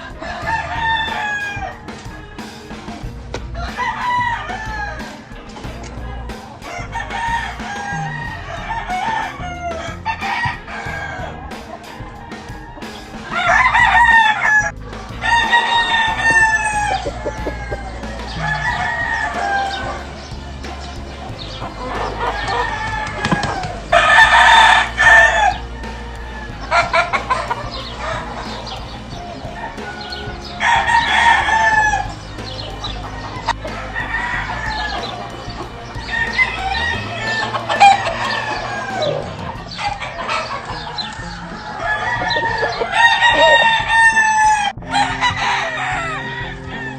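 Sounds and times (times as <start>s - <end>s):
chickens clucking: 0.0s - 46.9s
roosters crowing: 0.0s - 46.9s.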